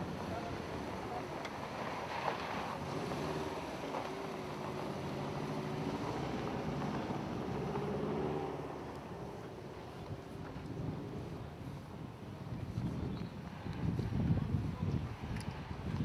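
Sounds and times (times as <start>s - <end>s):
car engine revving: 2.1s - 9.3s
wind noise on microphone: 9.9s - 16.0s.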